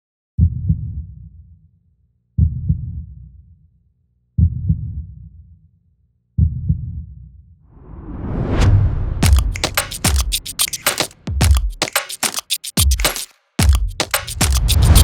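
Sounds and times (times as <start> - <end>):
rising whoosh: 7.7 - 10.5.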